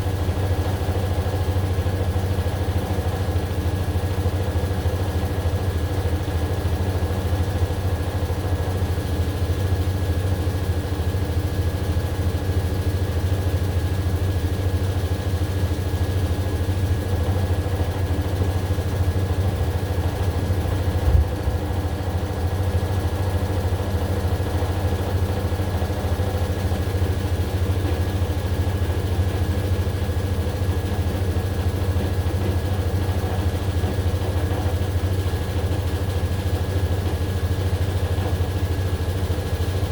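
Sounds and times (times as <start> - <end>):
washing machine motor humming: 19.6 - 23.8
thump: 21.0 - 21.7.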